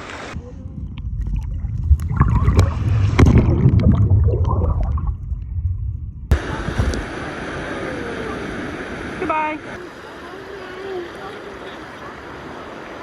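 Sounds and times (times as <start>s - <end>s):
sharp clicks and splashes: 0.0s - 7.1s
water churning and sloshing: 0.0s - 13.0s.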